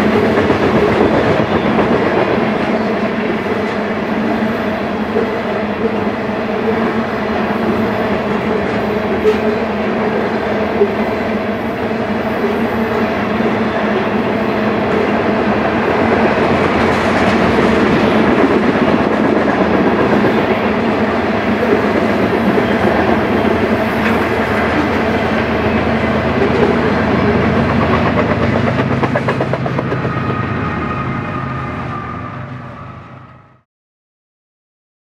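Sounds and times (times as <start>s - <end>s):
diesel locomotive engine drone: 0.0s - 33.6s
freight train rumble: 0.0s - 33.6s.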